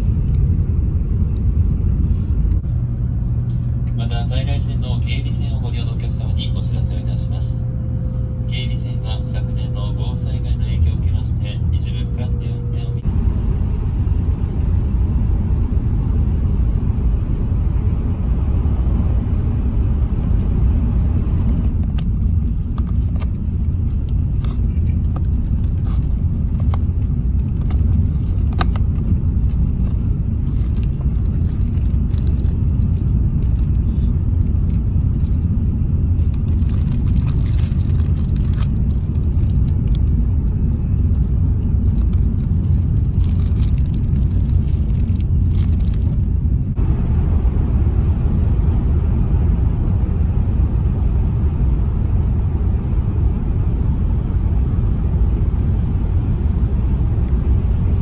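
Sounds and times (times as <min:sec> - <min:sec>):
train cabin low rumble: 0:00.0 - 0:58.0
cardboard box and wrapper rustling: 0:29.8 - 0:32.6, 0:36.4 - 0:39.8, 0:41.8 - 0:46.3
plastic wrapper crinkle: 0:30.4 - 0:33.8, 0:36.2 - 0:40.1, 0:41.0 - 0:46.3.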